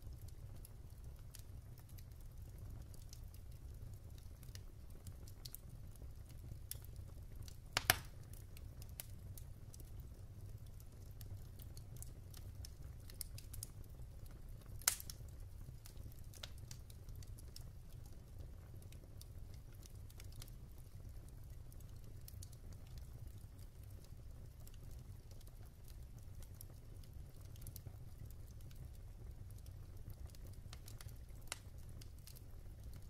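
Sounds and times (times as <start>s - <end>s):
logs crackling in fireplace: 0.0s - 33.0s
fire pops: 6.7s - 9.1s, 14.7s - 17.7s.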